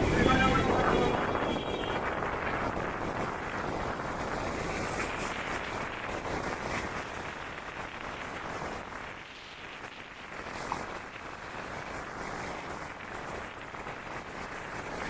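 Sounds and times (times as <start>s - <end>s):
vehicle going by: 0.0s - 2.0s.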